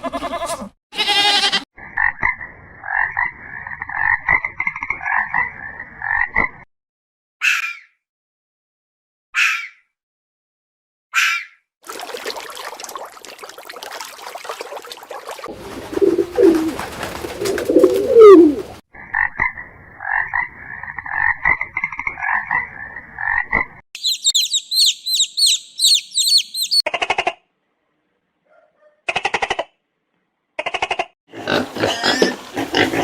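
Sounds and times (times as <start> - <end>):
high bird chirps: 24.0 - 26.9.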